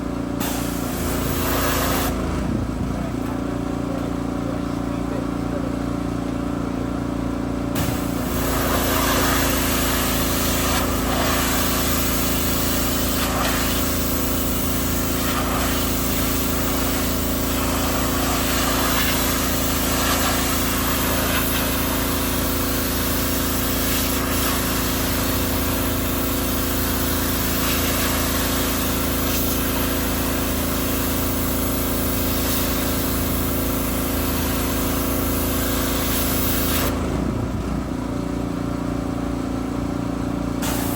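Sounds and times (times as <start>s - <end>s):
pressure washer motor drone: 0.0s - 40.9s
water spray hissing: 7.8s - 25.8s, 40.6s - 40.9s.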